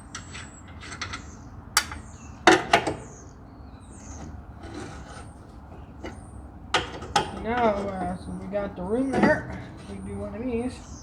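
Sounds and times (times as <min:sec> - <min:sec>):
tools knocking on metal parts: 0:00.0 - 0:03.2, 0:04.0 - 0:11.0
light rubbing: 0:04.0 - 0:11.0.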